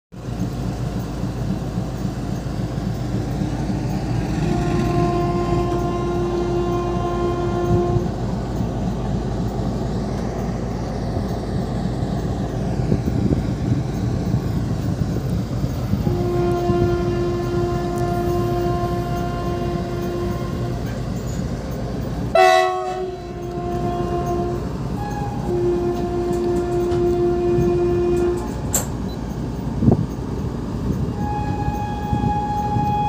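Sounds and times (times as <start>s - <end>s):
train rumbling on rails: 0.1s - 33.0s
locomotive horn: 3.7s - 8.7s, 16.0s - 21.0s, 22.3s - 28.9s, 31.1s - 33.0s.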